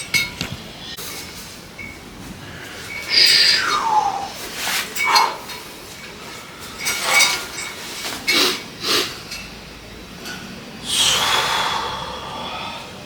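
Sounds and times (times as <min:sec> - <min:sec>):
metal gym weights clinking: 0:02.8 - 0:10.6.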